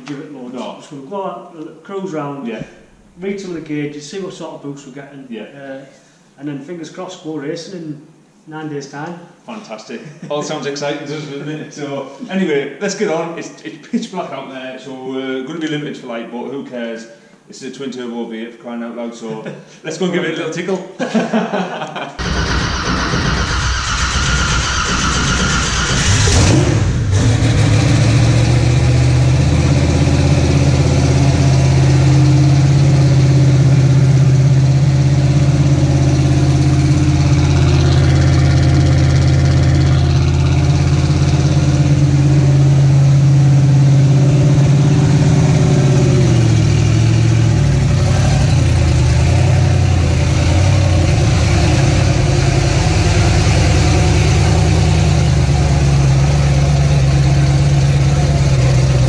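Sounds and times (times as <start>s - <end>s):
car engine starting and idling: 22.2s - 59.0s.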